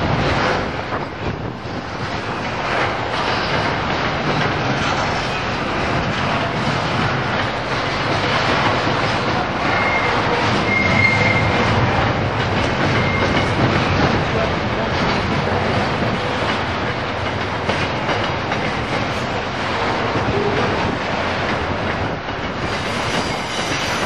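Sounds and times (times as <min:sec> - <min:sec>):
train wheels on rails: 0:00.0 - 0:24.0
high wheel squeal: 0:09.6 - 0:11.7, 0:12.9 - 0:13.6, 0:22.7 - 0:24.0.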